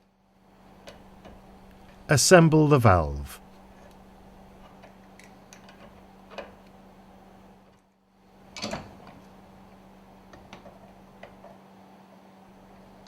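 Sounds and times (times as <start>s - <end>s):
steady low hum: 0.0s - 11.4s.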